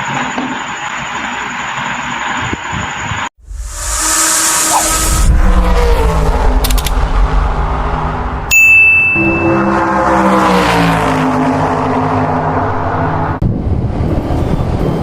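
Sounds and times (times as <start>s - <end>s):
vehicle engine running: 0.0s - 13.4s
bright ding: 8.5s - 9.8s.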